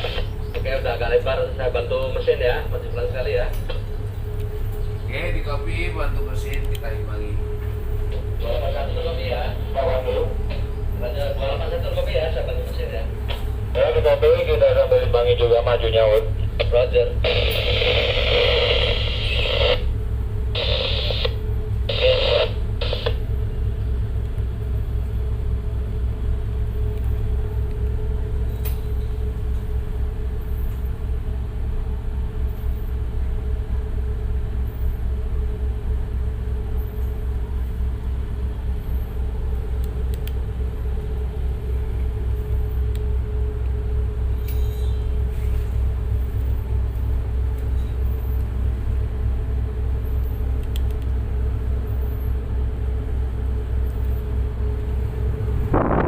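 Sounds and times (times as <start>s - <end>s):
diesel engines rumbling: 0.0s - 56.0s
steady hum: 0.0s - 56.0s.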